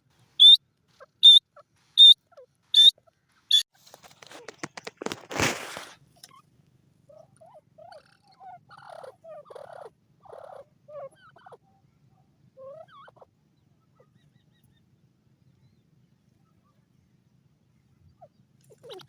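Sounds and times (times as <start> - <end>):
birds giving soft calls: 0.4 - 3.6, 7.1 - 11.7, 12.6 - 15.0
brief scratchy noises: 4.0 - 6.0.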